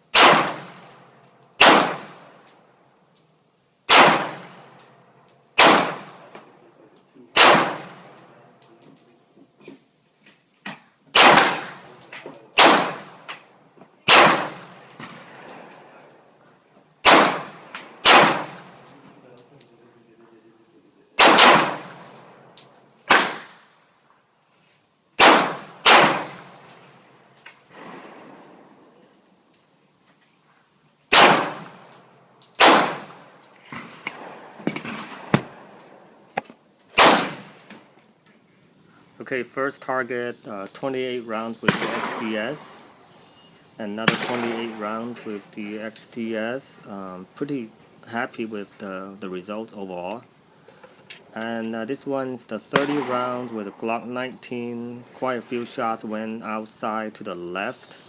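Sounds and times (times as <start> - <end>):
pistol shots ringing: 0.1 - 2.4, 3.9 - 5.0, 5.6 - 6.3, 7.4 - 8.4, 11.2 - 13.3, 14.1 - 15.9, 17.0 - 19.0, 21.2 - 23.6, 25.2 - 28.0, 31.1 - 35.8, 40.2 - 47.8, 52.7 - 54.6.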